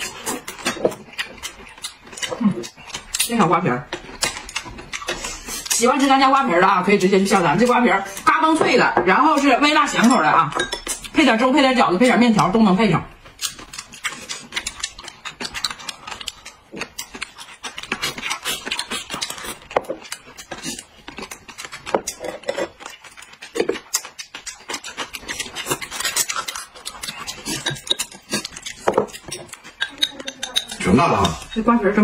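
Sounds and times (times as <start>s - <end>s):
crunchy chewing: 0.0s - 6.3s, 13.2s - 31.7s
lip smacking: 22.8s - 31.5s
chopsticks clicking on plates: 25.6s - 31.7s.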